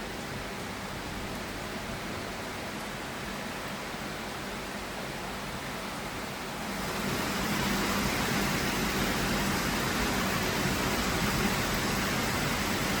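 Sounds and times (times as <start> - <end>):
rain hiss: 1.4 - 13.0.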